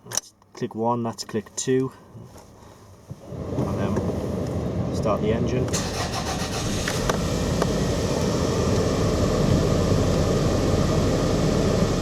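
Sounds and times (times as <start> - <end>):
car engine running: 3.2 - 12.0.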